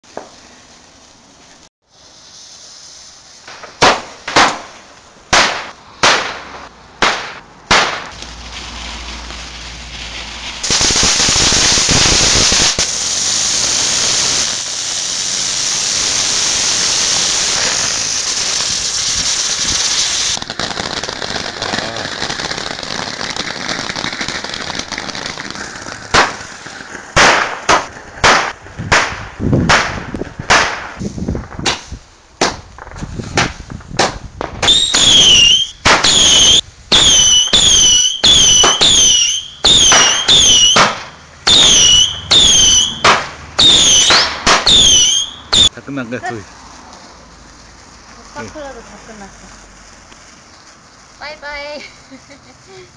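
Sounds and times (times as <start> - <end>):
firework bangs: 0.0 - 52.7
firework fountain hissing: 0.0 - 52.9
shrill firework whistle: 10.6 - 20.4, 34.6 - 45.7.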